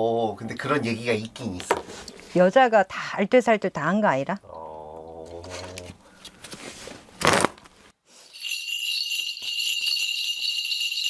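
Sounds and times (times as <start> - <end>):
bells jingling: 8.3 - 11.0.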